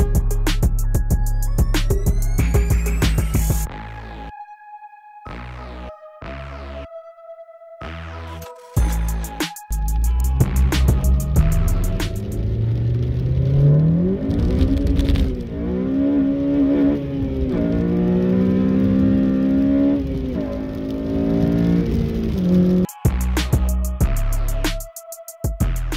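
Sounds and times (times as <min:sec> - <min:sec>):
car engine accelerating: 0:10.1 - 0:22.9.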